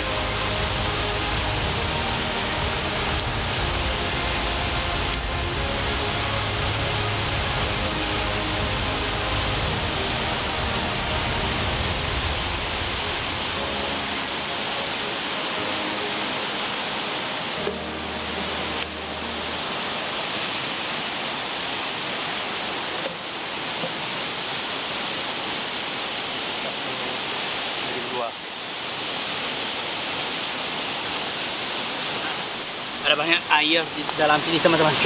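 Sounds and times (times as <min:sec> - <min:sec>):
water rushing: 0:00.0 - 0:35.0.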